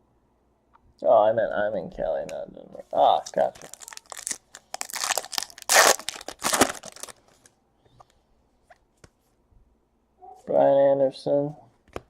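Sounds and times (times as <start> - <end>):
foil wrapper tearing and crinkling: 3.2 - 7.5
faint clicks of cards handled: 7.3 - 9.4.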